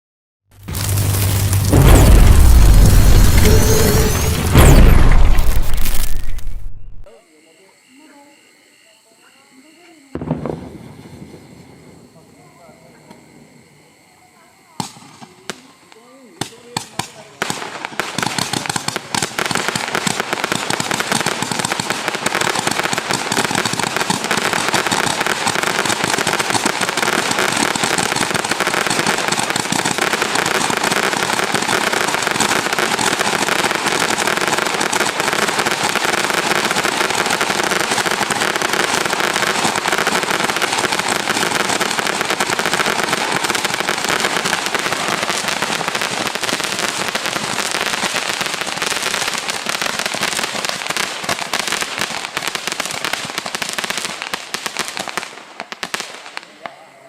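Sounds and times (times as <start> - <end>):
roman candle firework pops and cracks: 0.6 - 6.8, 14.8 - 15.7, 16.4 - 56.6.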